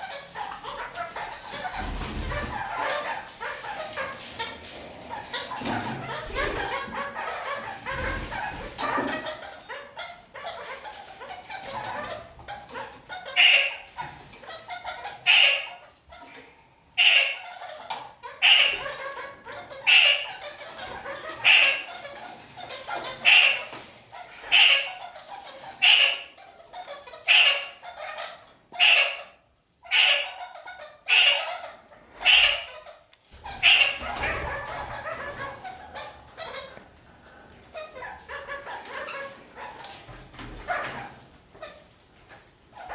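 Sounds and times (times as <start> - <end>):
parakeet chattering: 29.9 - 36.8.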